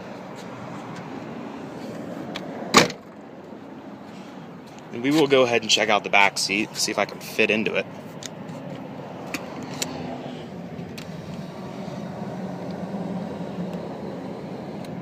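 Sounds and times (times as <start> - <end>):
car seat clicks and knocks: 2.7 - 3.0
steady low hum: 3.0 - 15.0.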